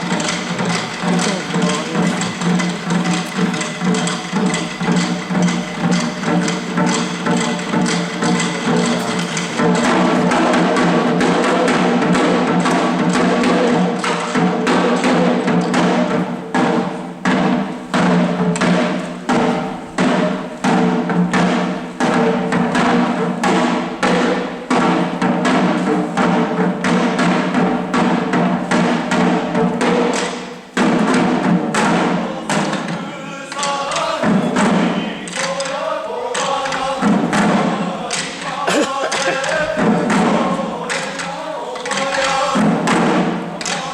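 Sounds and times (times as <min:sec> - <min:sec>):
chanted singing: 0:00.0 - 0:15.2, 0:31.8 - 0:43.9
drums beaten in steady rhythm: 0:00.0 - 0:43.9.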